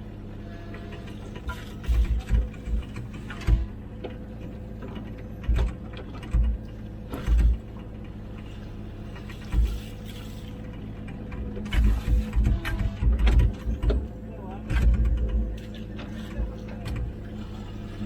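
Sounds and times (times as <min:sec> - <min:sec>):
excavator diesel engine running: 0:00.0 - 0:18.0
dull clunk: 0:01.4 - 0:04.2, 0:04.8 - 0:07.9.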